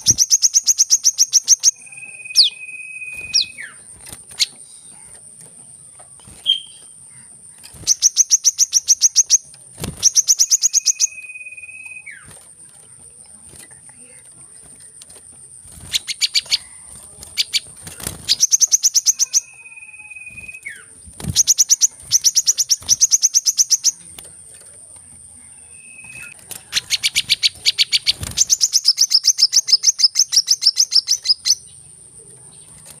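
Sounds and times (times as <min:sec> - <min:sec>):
bird trilling: 0:00.0 - 0:05.2, 0:06.2 - 0:12.4, 0:15.8 - 0:24.1, 0:25.5 - 0:31.7.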